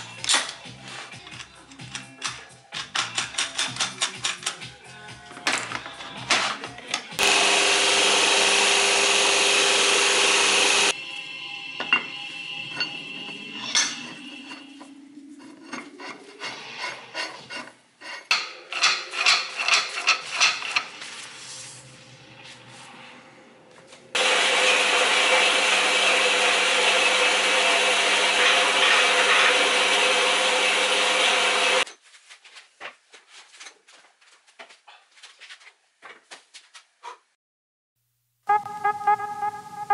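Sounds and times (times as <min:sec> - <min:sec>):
metallic clicks and knocks: 0:01.3 - 0:04.7
bandsaw cutting steel rod: 0:07.2 - 0:11.0, 0:24.2 - 0:31.9.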